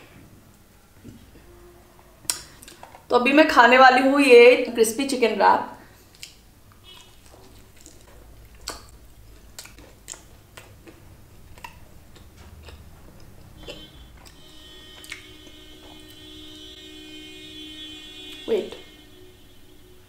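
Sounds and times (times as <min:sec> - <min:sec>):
faint steady hum: 0:00.0 - 0:20.0
crunchy chewing: 0:06.0 - 0:16.4.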